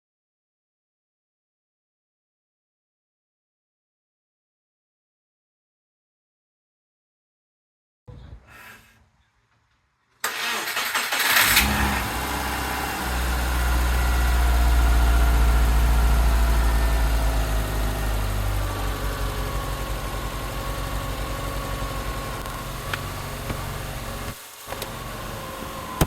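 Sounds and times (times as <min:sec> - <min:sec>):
engine starter cranking: 0:10.2 - 0:12.2
car engine fast idle: 0:10.2 - 0:26.0.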